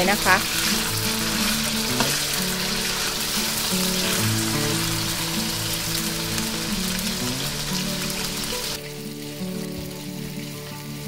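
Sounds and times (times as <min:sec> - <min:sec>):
background music: 0:00.0 - 0:11.0
meat sizzling in hot oil: 0:00.0 - 0:11.0.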